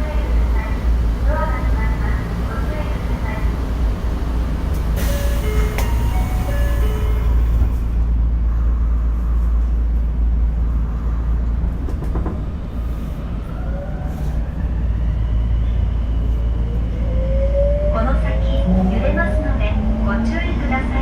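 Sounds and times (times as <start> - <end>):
subway train running rumble: 0.0 - 21.0.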